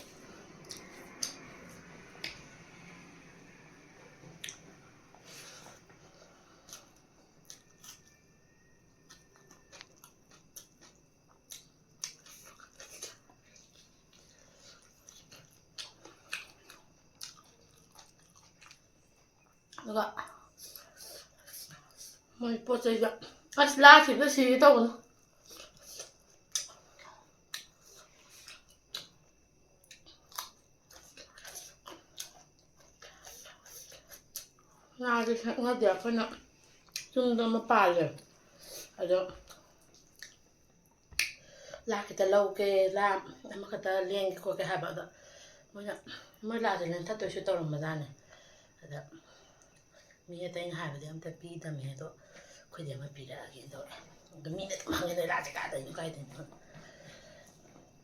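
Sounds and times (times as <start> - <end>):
chewing with crunches: 5.4 - 22.1, 25.0 - 34.9, 38.2 - 41.4.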